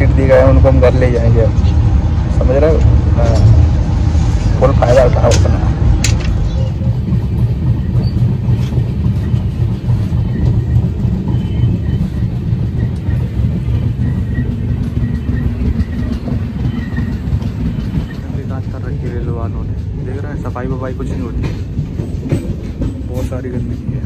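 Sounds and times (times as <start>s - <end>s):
train wheels rumbling on track: 0.0s - 24.0s
rushing air: 1.8s - 6.5s.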